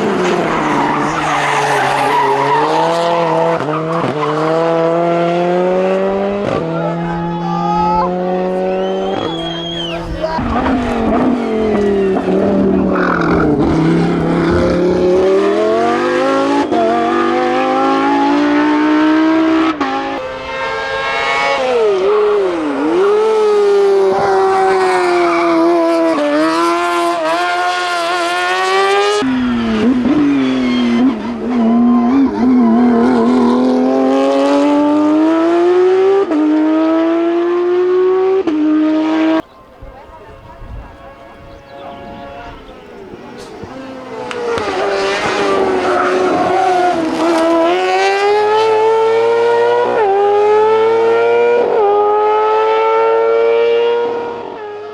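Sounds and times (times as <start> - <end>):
racing car engines revving: 0.0 - 54.9
tyres squealing: 6.9 - 14.0.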